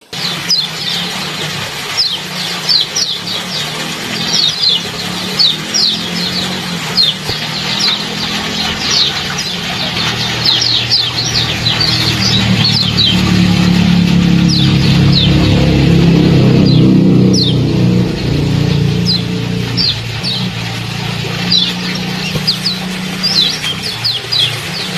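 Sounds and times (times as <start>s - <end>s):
water trickling: 0.1s - 24.9s
low steady hum: 0.8s - 24.9s
small bird chirping: 2.0s - 13.4s, 14.5s - 15.6s, 16.6s - 17.6s, 18.7s - 20.5s, 21.4s - 24.9s.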